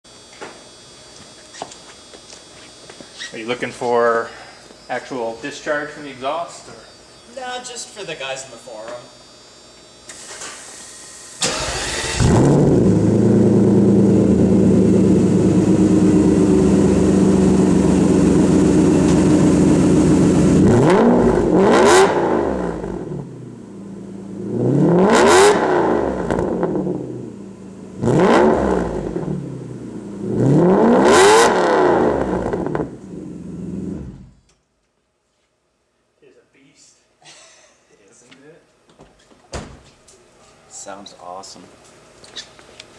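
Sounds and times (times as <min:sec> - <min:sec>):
car engine idling and revving: 0:11.4 - 0:34.4.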